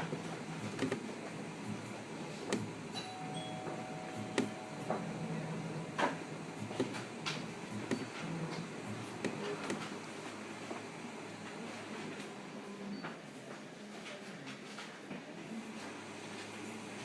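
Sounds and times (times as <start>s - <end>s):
printer motor hum: 0.0s - 13.4s
sharp printer clicks: 0.6s - 1.1s.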